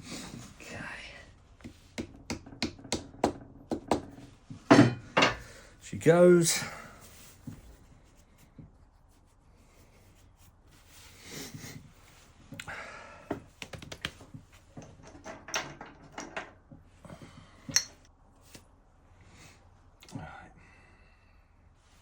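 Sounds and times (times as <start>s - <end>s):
metal parts clinking and knocking: 2.4s - 5.6s, 14.7s - 16.6s.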